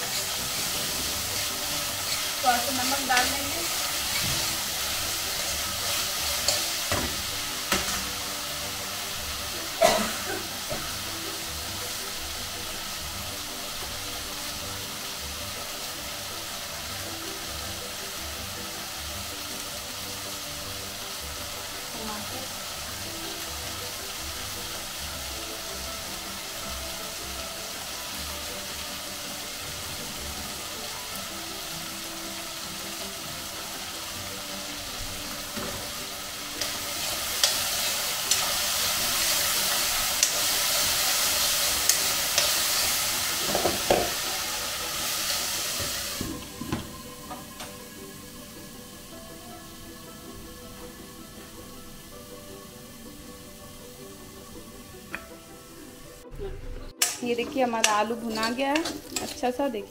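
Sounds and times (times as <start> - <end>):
potatoes sizzling in oil: 0.0 - 56.2, 57.0 - 59.9
spatula knocking pan: 43.4 - 44.3.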